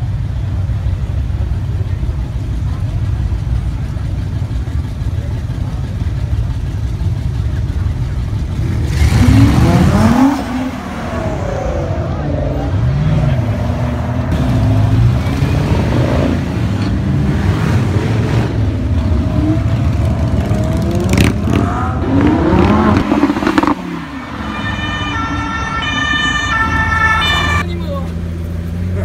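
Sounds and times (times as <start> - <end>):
sports car engines revving: 0.0 - 29.0
siren-like high tones: 23.4 - 27.6.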